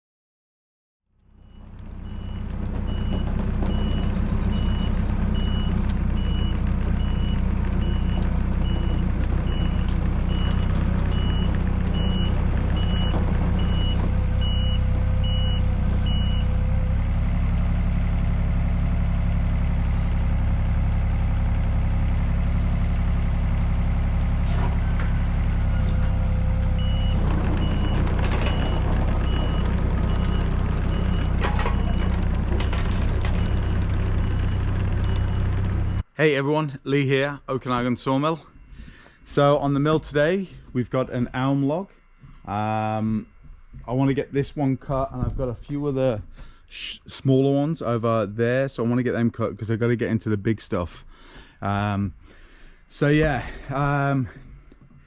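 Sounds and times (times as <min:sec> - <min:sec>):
heavy diesel machine running: 0:01.2 - 0:36.1, 0:37.2 - 0:46.9
reversing alarm beeping: 0:01.4 - 0:16.6, 0:24.7 - 0:36.1, 0:37.7 - 0:45.0.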